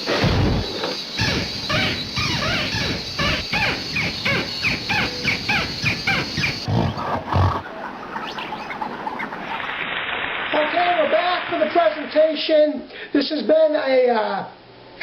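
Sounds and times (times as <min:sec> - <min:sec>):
short arched animal calls: 0:01.2 - 0:09.3.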